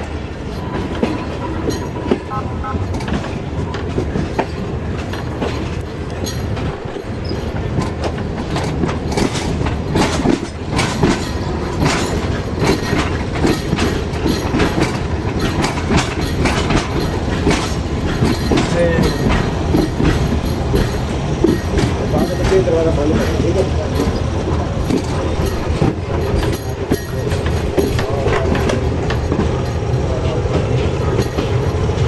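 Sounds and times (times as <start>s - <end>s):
train rumbling on track: 0.0s - 32.0s
train wheels clacking over rail joints: 0.0s - 32.0s.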